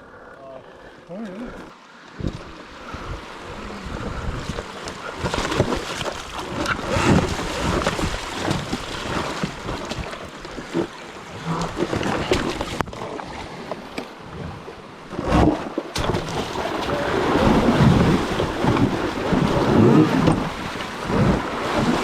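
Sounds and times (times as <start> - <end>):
wind buffeting microphone: 2.2 - 10.2, 14.2 - 22.0.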